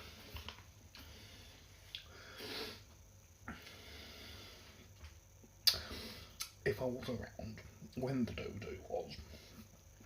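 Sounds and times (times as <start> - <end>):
faint breathing and sniffing: 0.0 - 5.0, 5.7 - 6.4.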